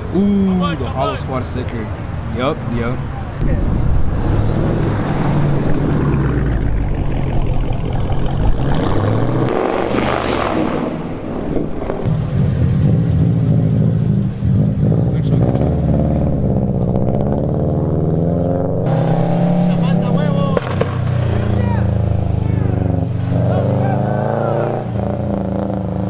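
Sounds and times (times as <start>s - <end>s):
car engines running: 0.0s - 26.0s
rush of noise: 3.4s - 12.3s
car engine revving up: 3.4s - 26.0s.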